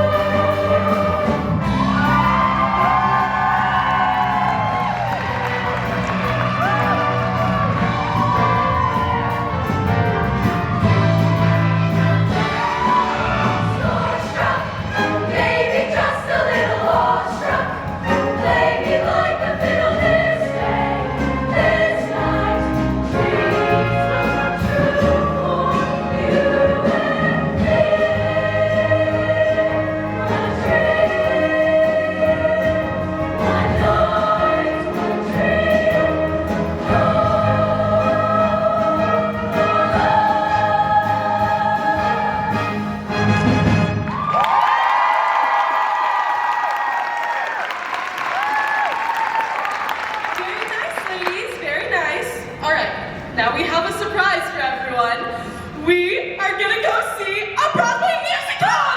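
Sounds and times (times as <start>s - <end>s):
choir singing: 0.0s - 43.8s
instrumental accompaniment: 0.0s - 44.3s.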